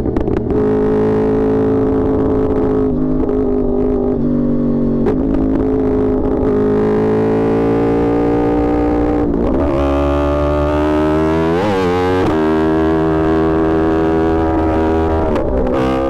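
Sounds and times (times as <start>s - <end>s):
motorcycle engine running loud: 0.0s - 16.0s.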